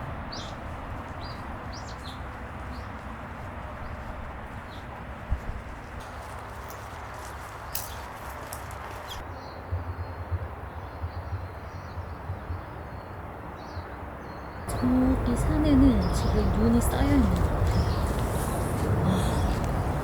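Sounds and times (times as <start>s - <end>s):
wind gusts rumbling on microphone: 0.0s - 13.9s, 14.6s - 20.0s
strong wind blowing: 14.7s - 20.0s.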